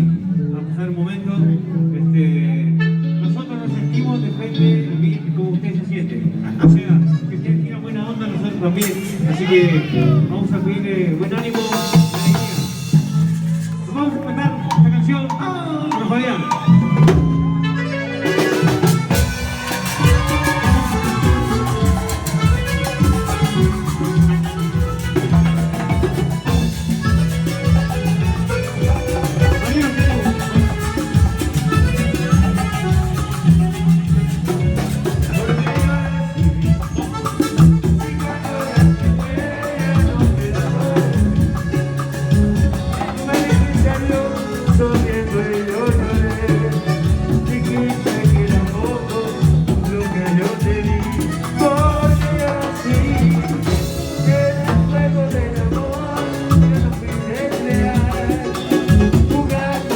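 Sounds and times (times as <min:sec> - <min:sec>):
live band playing: 0:00.0 - 0:59.9
drum and percussion beat: 0:08.8 - 0:10.0, 0:11.2 - 0:13.9, 0:18.2 - 0:59.9
bass line: 0:08.8 - 0:59.9.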